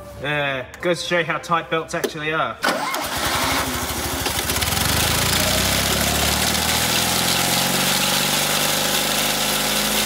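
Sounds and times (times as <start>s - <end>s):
small car engine idling: 2.9s - 7.0s.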